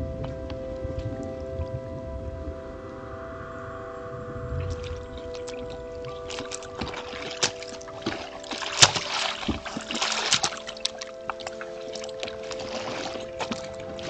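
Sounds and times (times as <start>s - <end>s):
soft music drone: 0.0s - 14.0s
water splashing: 0.0s - 14.0s.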